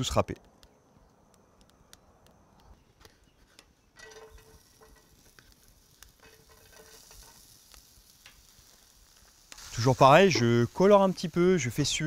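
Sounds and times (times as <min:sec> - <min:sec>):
grated vegetables sizzling in oil: 0:04.3 - 0:12.0.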